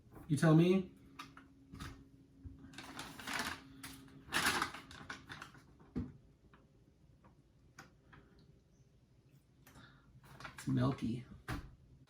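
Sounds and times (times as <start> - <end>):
plastic packaging crinkling: 2.7 - 5.8.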